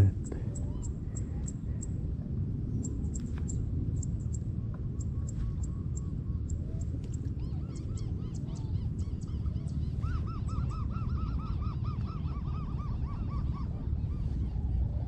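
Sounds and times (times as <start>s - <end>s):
steady low rumble: 0.0s - 15.0s
bird calling: 5.2s - 14.8s.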